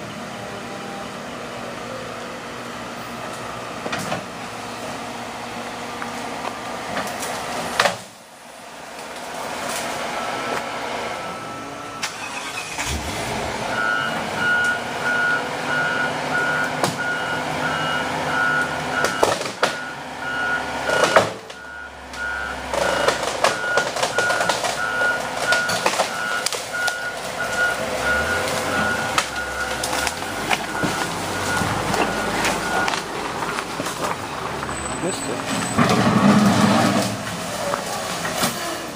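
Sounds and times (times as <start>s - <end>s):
heavy vehicle engine running: 0.0s - 38.9s
reversing alarm beeping: 10.1s - 33.0s.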